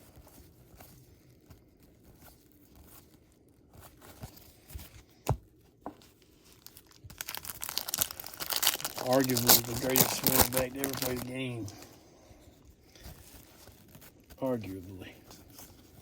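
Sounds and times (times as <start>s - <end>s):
trading cards being handled: 5.8s - 12.0s
wrapper crinkling and tearing: 6.0s - 12.0s, 12.9s - 16.0s.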